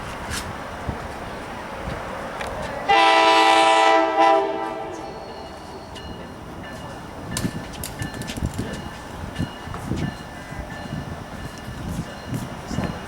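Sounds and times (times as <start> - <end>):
train air horn: 2.9 - 5.4.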